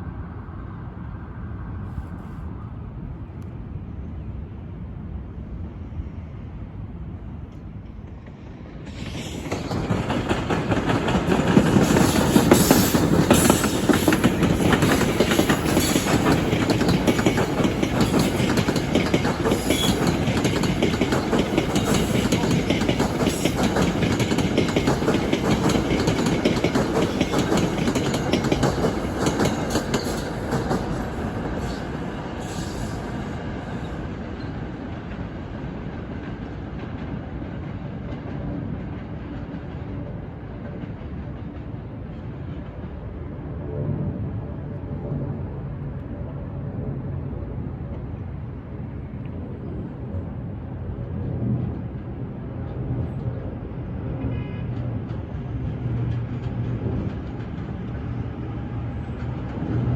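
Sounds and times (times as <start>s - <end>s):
train wheels clacking on rails: 8.1s - 42.9s, 52.7s - 59.9s.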